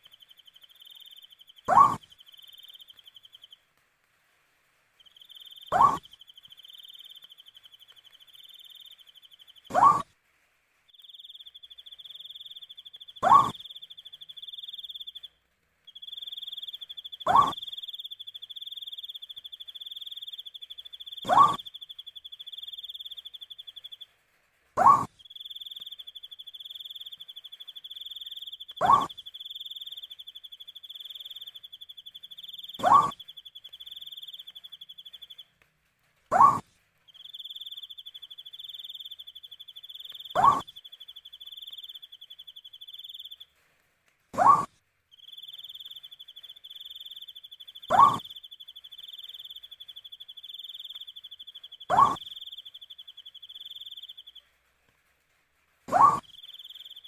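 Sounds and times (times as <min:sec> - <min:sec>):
owl hooting: 0:00.0 - 0:03.5, 0:05.1 - 0:10.1, 0:11.0 - 0:15.3, 0:16.0 - 0:24.0, 0:24.8 - 0:35.4, 0:36.3 - 0:43.5, 0:44.4 - 0:54.6, 0:55.9 - 0:57.0
crickets trilling: 0:25.2 - 0:35.4, 0:37.2 - 0:43.4, 0:45.2 - 0:54.4.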